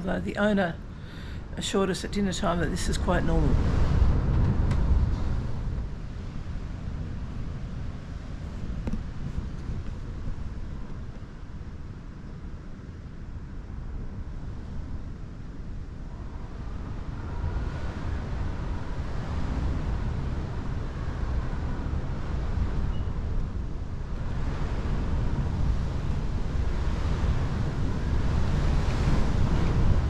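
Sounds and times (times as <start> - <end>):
strong wind gusting: 0.0 - 30.0
wind buffeting microphone: 0.0 - 30.0
faint wind whistle: 16.1 - 23.4.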